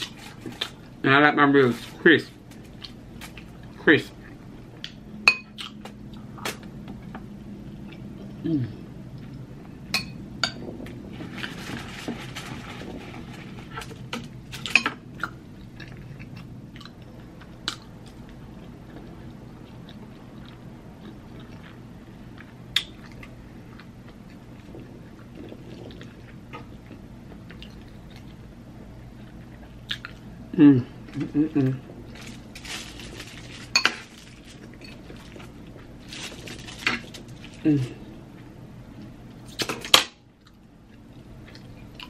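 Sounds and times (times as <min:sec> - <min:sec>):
chewing crisp food: 0:15.2 - 0:30.3, 0:40.3 - 0:42.0.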